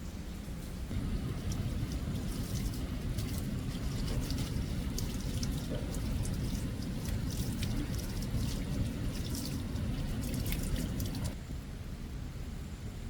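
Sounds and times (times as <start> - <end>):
steady low rumble: 0.0 - 13.0
water dripping and trickling: 0.9 - 11.4.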